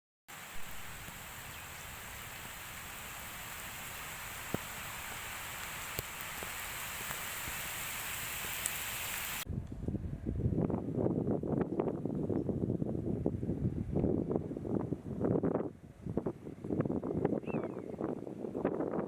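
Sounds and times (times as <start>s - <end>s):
steady outdoor hiss: 0.3s - 9.4s
wind buffeting microphone: 9.3s - 19.0s.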